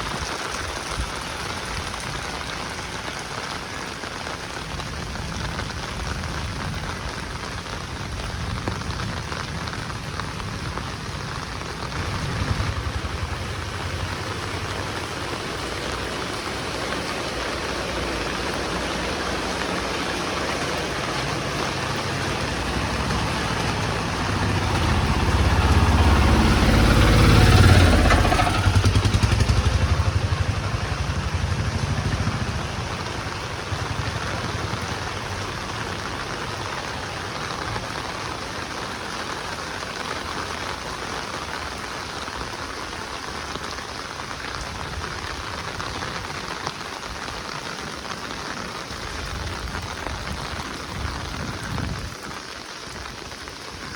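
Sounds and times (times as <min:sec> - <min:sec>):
heavy rain falling: 0:00.0 - 0:53.9
motor vehicle passing: 0:09.0 - 0:38.6.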